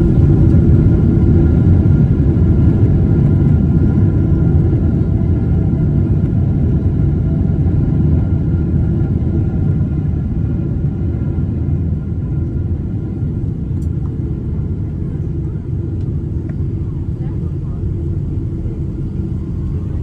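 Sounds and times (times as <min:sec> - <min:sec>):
jet engine roar: 0:00.0 - 0:20.0.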